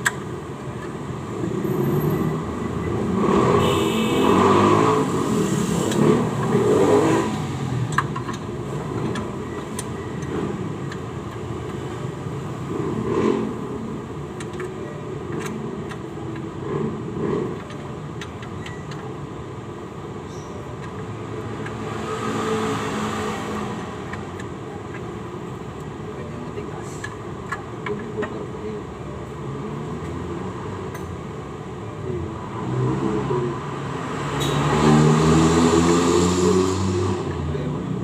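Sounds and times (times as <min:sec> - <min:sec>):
vehicle noise: 0:00.0 - 0:38.0.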